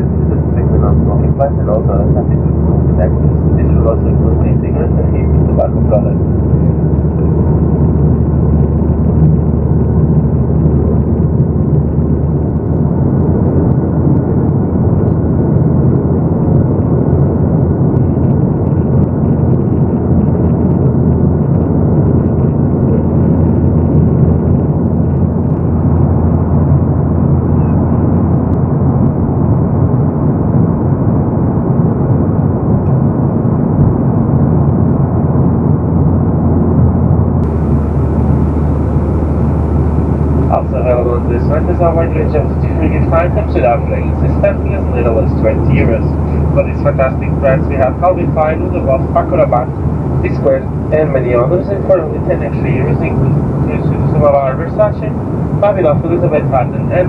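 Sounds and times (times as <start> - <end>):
airplane cabin drone: 0.0 - 28.8, 37.4 - 57.0
low steady hum: 37.4 - 57.0
rushing airflow: 37.4 - 57.0.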